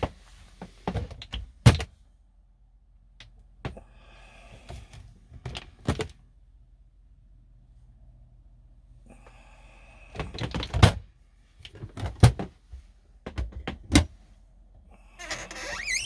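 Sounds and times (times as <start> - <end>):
faint squeak: 15.2 - 16.0.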